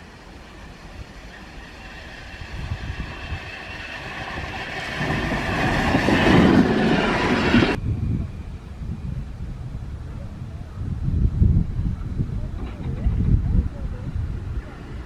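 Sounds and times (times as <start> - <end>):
train passing: 0.0 - 9.2, 12.9 - 15.0.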